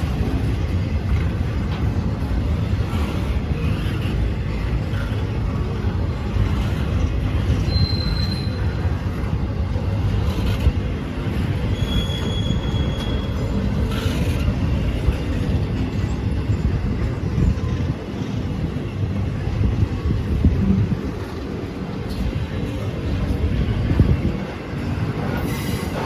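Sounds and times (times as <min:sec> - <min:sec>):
train rumbling past: 0:00.0 - 0:26.0
train wheels squealing: 0:06.6 - 0:09.4, 0:10.4 - 0:15.3, 0:25.2 - 0:26.0.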